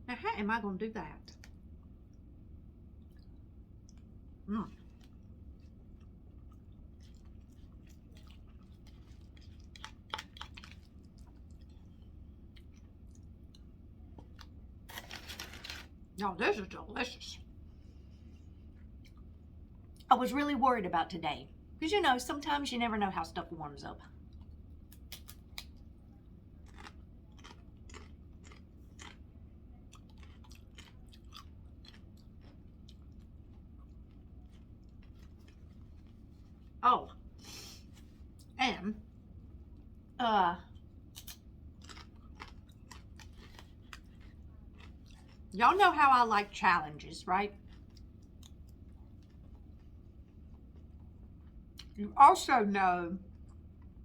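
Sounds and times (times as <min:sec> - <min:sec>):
faint low hum: 0:00.0 - 0:54.0
person chewing food: 0:03.0 - 0:15.8, 0:18.0 - 0:20.1, 0:24.2 - 0:36.8, 0:40.8 - 0:45.6, 0:47.5 - 0:52.0.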